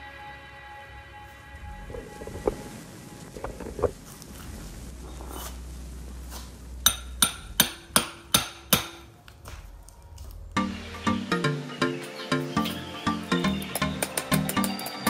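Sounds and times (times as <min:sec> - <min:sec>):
music: 0:00.0 - 0:03.3, 0:10.4 - 0:15.0
hammer striking metal: 0:06.8 - 0:09.2, 0:13.5 - 0:15.0.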